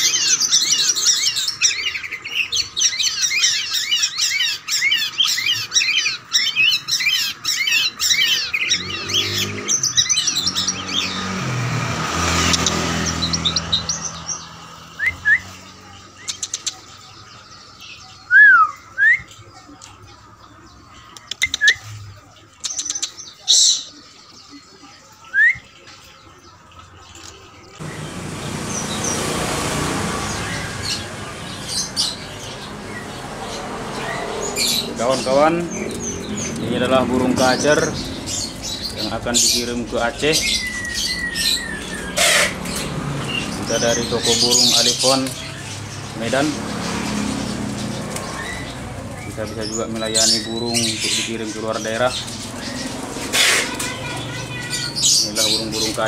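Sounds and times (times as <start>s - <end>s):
songbirds chirping: 0.0s - 56.0s
passing engine: 8.2s - 17.5s, 27.8s - 56.0s.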